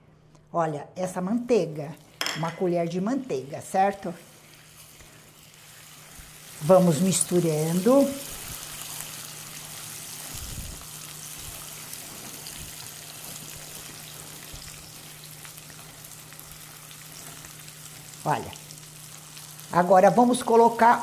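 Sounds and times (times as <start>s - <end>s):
sugar and butter sizzling: 1.2s - 21.0s
spatula stirring in pan: 4.2s - 7.2s.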